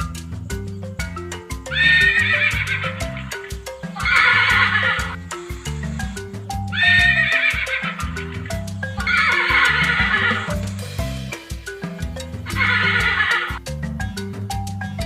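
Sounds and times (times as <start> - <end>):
background music with light beat: 0.0 - 15.0
horse whinnying: 1.7 - 10.7, 12.5 - 13.6.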